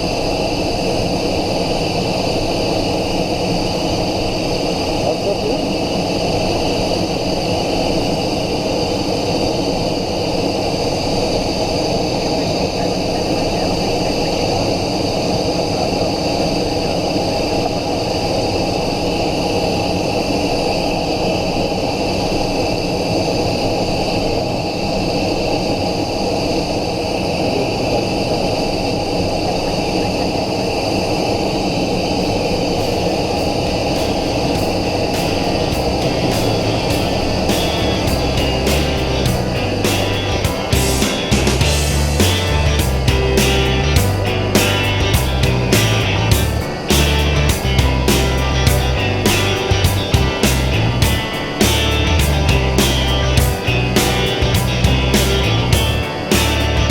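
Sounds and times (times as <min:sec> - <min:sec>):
jet engine rumble and whine: 0:00.0 - 0:41.9
rush of air: 0:30.5 - 0:56.9.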